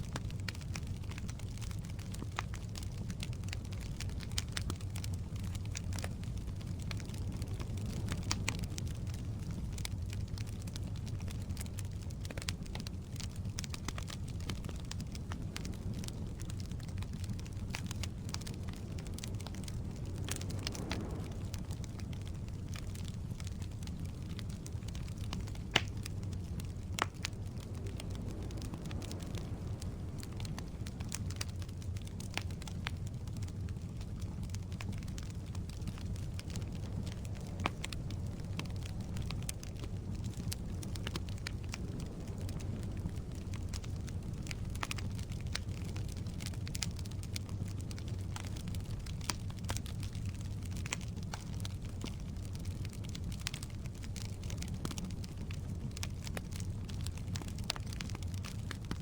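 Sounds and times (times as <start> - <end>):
logs crackling and popping: 0.0 - 59.0
low rumble of flames: 0.0 - 59.0.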